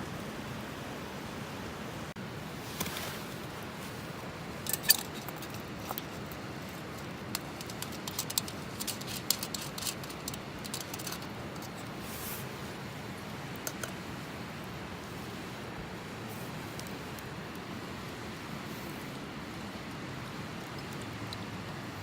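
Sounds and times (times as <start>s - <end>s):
steady hiss: 0.0s - 22.0s
light clicks and taps: 13.6s - 14.0s.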